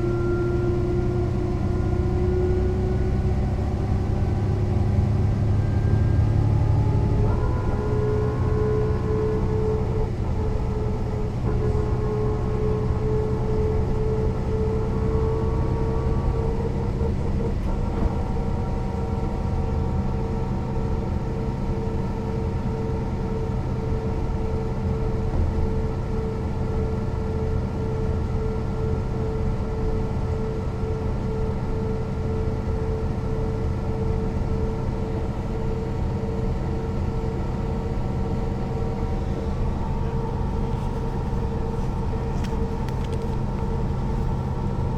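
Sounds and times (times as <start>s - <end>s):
bus diesel engine droning with whine: 0.0s - 44.9s.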